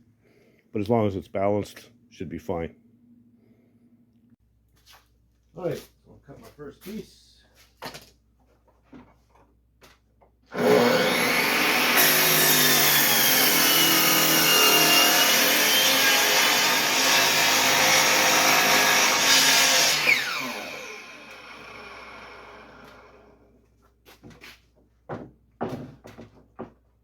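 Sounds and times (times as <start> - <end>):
electric power saw cutting board: 10.5 - 23.4.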